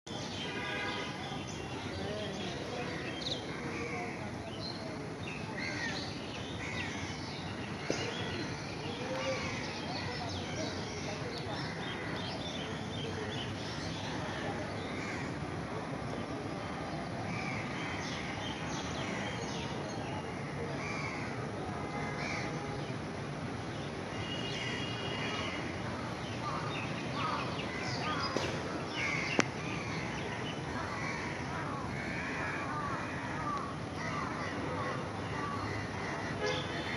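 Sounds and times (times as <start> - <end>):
birds calling: 24.2 - 36.9.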